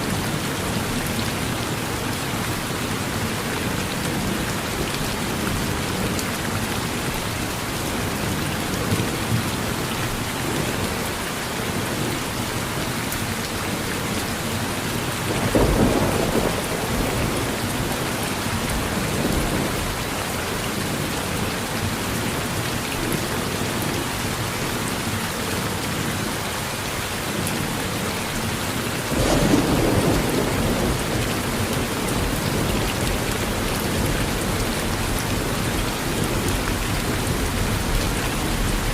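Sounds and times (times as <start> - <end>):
heavy rain hissing: 0.0 - 38.9
thunder rolling: 29.1 - 31.0.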